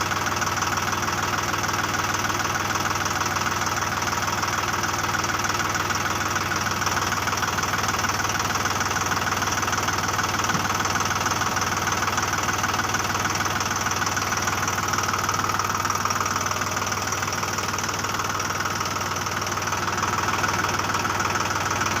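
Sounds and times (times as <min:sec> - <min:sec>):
motor running with rattle: 0:06.0 - 0:22.0.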